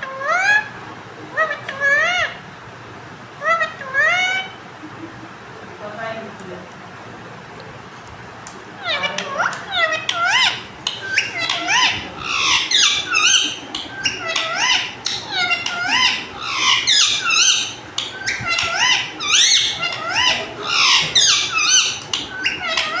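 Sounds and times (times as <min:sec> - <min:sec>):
parrot squeaky chirps: 0:08.8 - 0:23.0.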